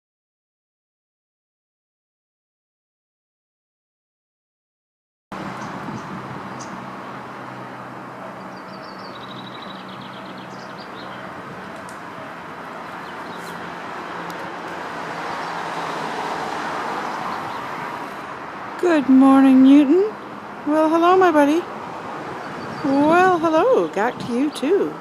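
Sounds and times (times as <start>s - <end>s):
road traffic rushing: 5.3s - 25.0s
vehicle passing: 5.3s - 25.0s.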